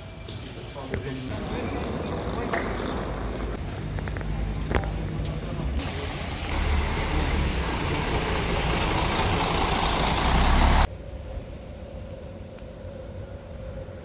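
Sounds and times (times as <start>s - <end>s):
loud rumbling vehicle noise: 1.4s - 10.9s.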